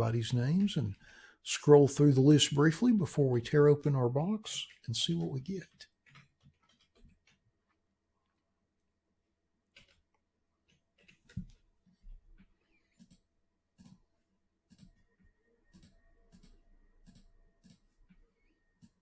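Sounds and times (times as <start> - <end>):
computer mouse clicking: 15.7 - 18.2.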